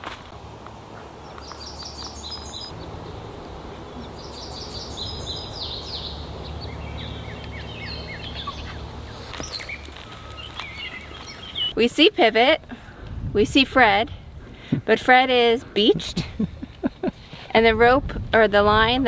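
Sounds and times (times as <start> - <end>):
low steady rumble: 0.3 - 14.6
songbirds singing: 0.8 - 12.1.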